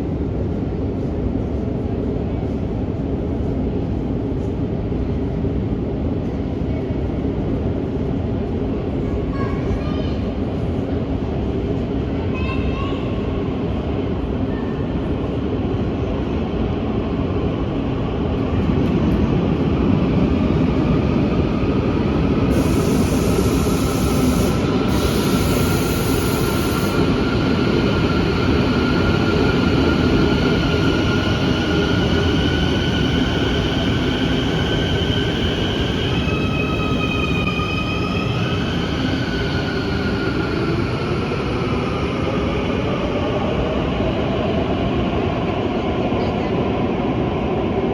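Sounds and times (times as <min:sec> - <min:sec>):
subway train wheels rumbling: 0:00.0 - 0:47.9.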